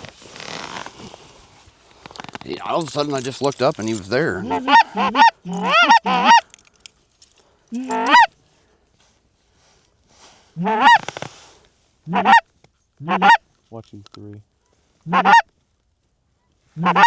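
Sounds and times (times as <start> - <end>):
goose call honks: 3.8 - 6.4, 7.8 - 8.3, 10.6 - 11.0, 12.1 - 12.4, 13.0 - 13.9, 15.1 - 15.4, 16.8 - 17.0.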